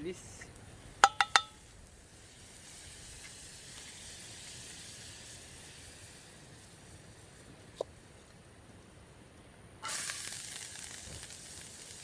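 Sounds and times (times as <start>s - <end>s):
food sizzling in a pan: 1.0s - 6.8s, 9.8s - 12.0s.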